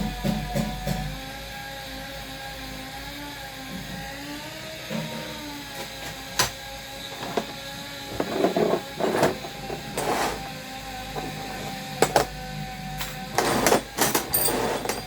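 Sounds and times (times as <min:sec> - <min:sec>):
steady background hum: 0:00.0 - 0:15.0
steel bolts and nuts rattling: 0:13.4 - 0:15.0.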